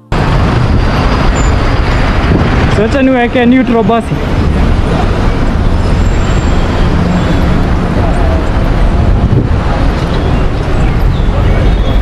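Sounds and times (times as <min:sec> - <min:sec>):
street traffic rumble: 0:00.0 - 0:12.0
faint voices: 0:06.9 - 0:12.0.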